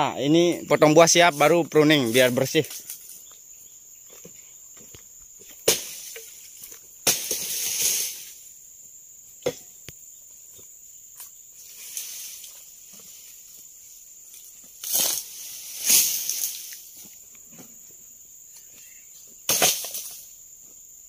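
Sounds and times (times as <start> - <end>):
high insect drone: 0.0 - 21.0
palm leaves rustling: 0.1 - 8.6, 10.4 - 20.8
sickle chopping palm stalks: 5.4 - 8.4, 14.3 - 17.7, 19.4 - 20.3.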